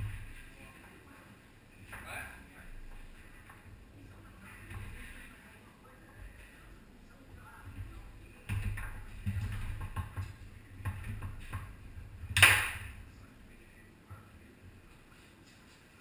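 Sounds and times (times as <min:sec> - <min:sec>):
foosball ball clacking: 0:08.5 - 0:13.0
hard foosball strike: 0:12.3 - 0:13.0.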